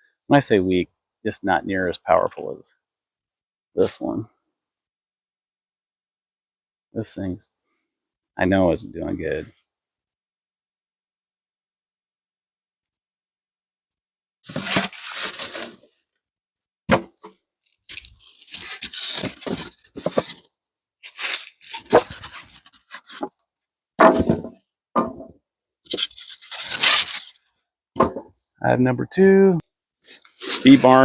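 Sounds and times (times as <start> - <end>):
rough material scraping and rustling: 14.4 - 15.9, 17.1 - 23.3, 25.9 - 27.4, 30.1 - 31.0.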